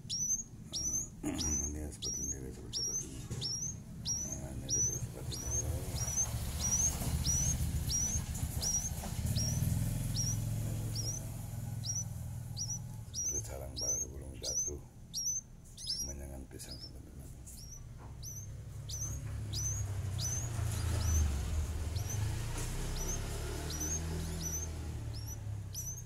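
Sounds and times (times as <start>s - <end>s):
low rumble: 0.0s - 14.6s
small bird chirping: 0.0s - 26.0s.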